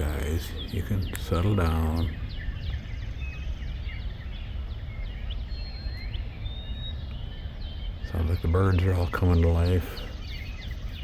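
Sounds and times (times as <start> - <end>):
birds chirping and whistling: 0.0 - 11.0
steady low rumble: 0.0 - 11.0.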